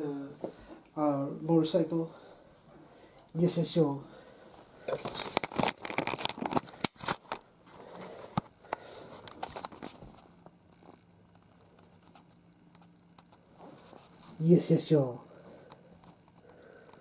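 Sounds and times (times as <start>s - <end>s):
plastic toys being handled: 4.9s - 7.4s
sharp clicks and rustles: 4.9s - 7.5s, 8.1s - 14.1s.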